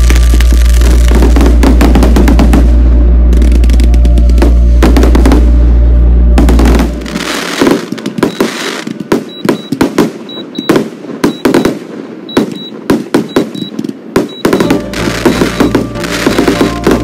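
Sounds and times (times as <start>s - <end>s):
fireworks bangs and crackles: 0.0s - 5.7s, 6.3s - 17.0s
music with steady bass: 0.0s - 7.8s, 14.5s - 17.0s.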